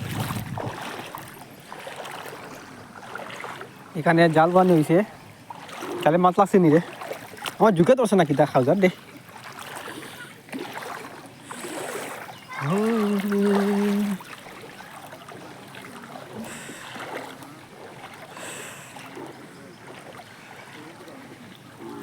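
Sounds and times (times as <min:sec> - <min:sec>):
water sloshing and trickling: 0:00.0 - 0:22.0
long held call: 0:12.3 - 0:14.3.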